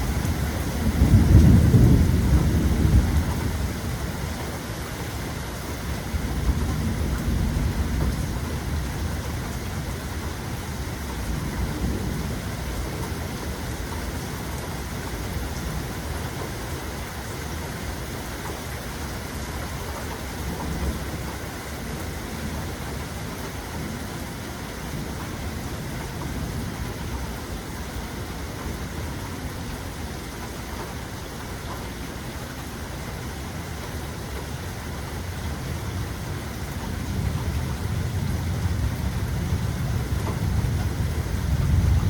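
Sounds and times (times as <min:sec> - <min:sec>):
low thunder roll: 0:00.0 - 0:04.0, 0:36.8 - 0:42.0
steady rain: 0:00.0 - 0:42.0.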